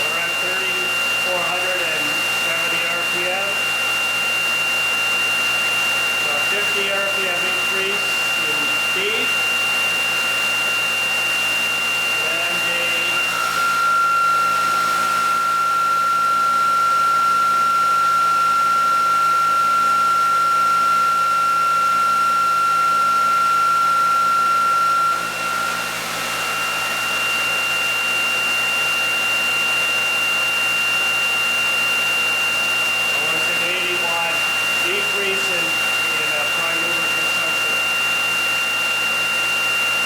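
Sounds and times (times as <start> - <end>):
electric motor whirring and whining: 0.0 - 40.0.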